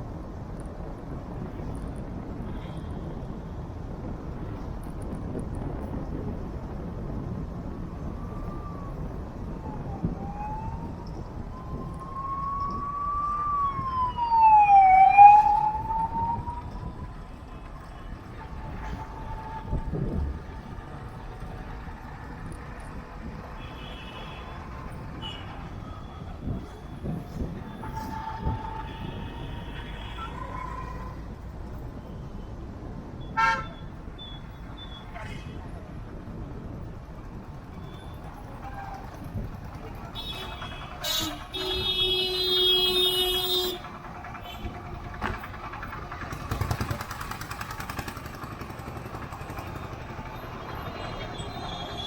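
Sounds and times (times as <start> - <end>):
road traffic rumble: 0.0 - 52.0
siren wailing: 8.0 - 17.3
distant car horns: 27.7 - 31.2, 33.2 - 35.5, 40.1 - 45.4
loud horn honk: 33.4 - 33.7, 40.2 - 43.9.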